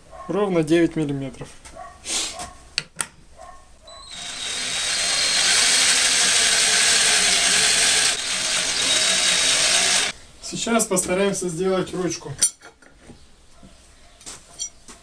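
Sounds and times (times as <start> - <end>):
cordless drill running: 4.0 - 10.1
drill clicks: 4.0 - 10.1.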